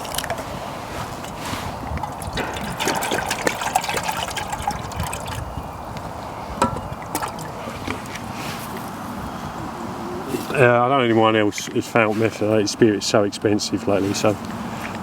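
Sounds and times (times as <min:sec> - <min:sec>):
liquid trickling: 0:00.0 - 0:05.8, 0:06.6 - 0:08.3.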